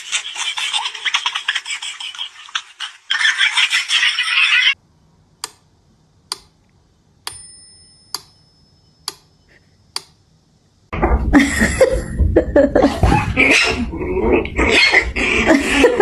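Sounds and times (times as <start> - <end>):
short bell-like ring: 7.3 - 9.0.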